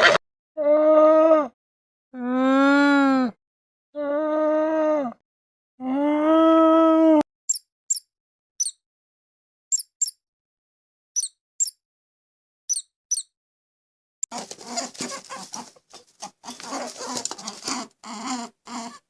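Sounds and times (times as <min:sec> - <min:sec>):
rough animal call: 0:00.0 - 0:00.2
high-pitched animal squeaks: 0:07.5 - 0:08.8, 0:09.7 - 0:10.2, 0:11.2 - 0:11.8, 0:12.7 - 0:13.3.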